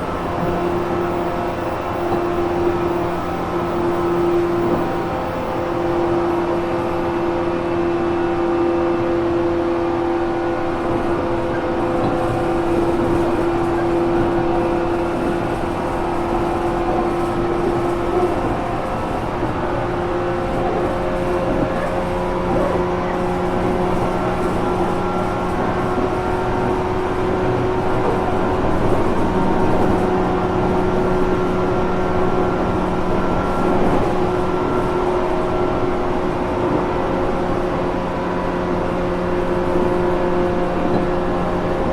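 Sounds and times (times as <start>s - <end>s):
train motor whine: 0.0s - 9.1s, 9.9s - 37.2s
wheel and rail noise: 10.0s - 41.9s.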